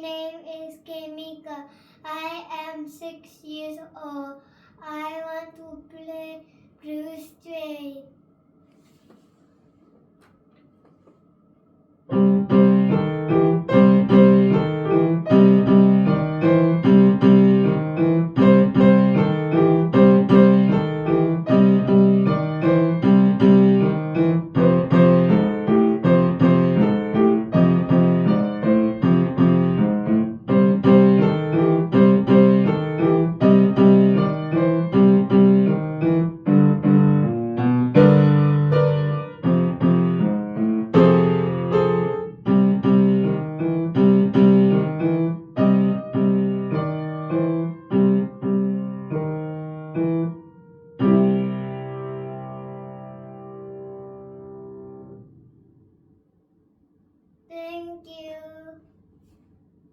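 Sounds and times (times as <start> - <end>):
solo blues piano: 12.1 - 55.3.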